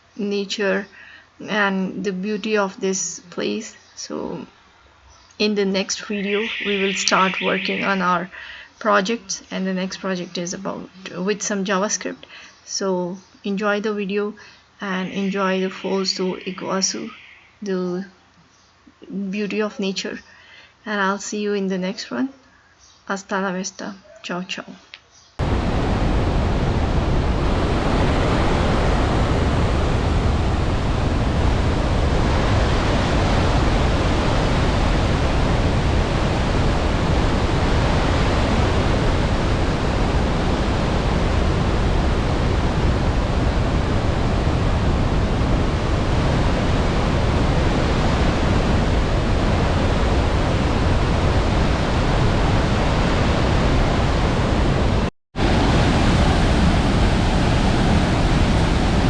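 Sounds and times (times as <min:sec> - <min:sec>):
waterfall rushing: 0:06.1 - 0:08.0, 0:15.0 - 0:17.5, 0:25.4 - 0:59.0.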